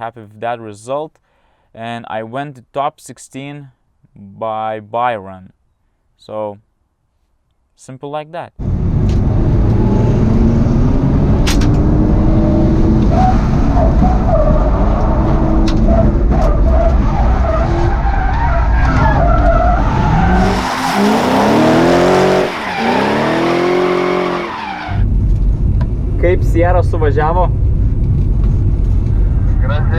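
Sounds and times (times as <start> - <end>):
car engine revving hard: 8.6 - 18.0, 18.9 - 25.0
tyres skidding: 8.6 - 25.1.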